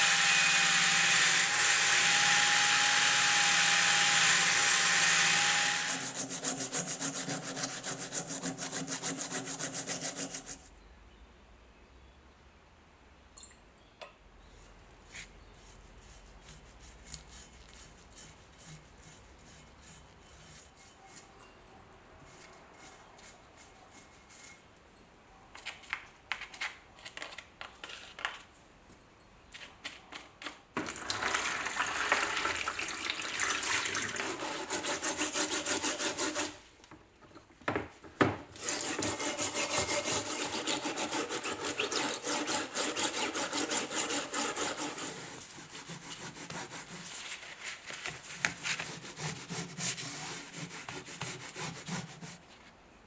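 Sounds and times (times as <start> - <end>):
hand scraping on steel: 14.5 - 21.6, 38.6 - 52.4.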